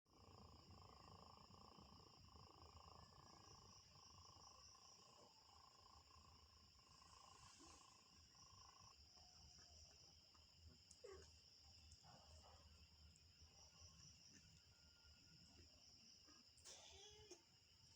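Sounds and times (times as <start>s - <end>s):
night insects chirring: 0.1s - 17.9s
cat purring: 0.2s - 9.3s, 10.9s - 12.6s.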